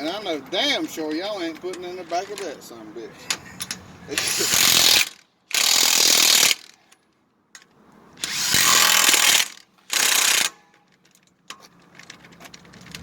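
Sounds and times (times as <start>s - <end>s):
power tool driving fasteners: 3.6s - 6.8s, 8.2s - 13.0s.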